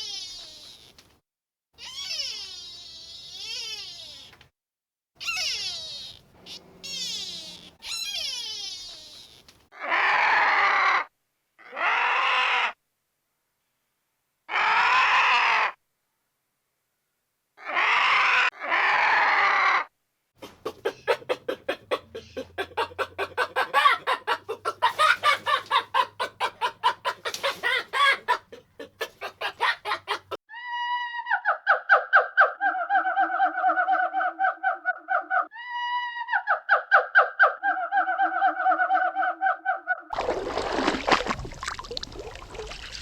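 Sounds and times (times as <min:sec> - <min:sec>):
barnyard animal calls: 0:05.2 - 0:10.0, 0:20.4 - 0:30.4
chicken clucking: 0:20.4 - 0:30.4.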